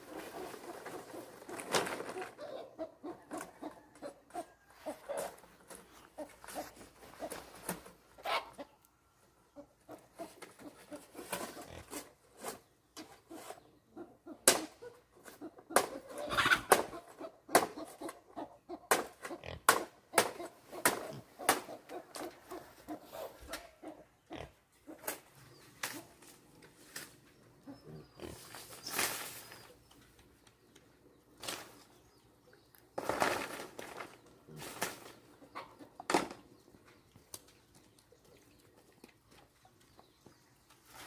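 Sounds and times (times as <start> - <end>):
pigs grunting: 20.4 - 25.1.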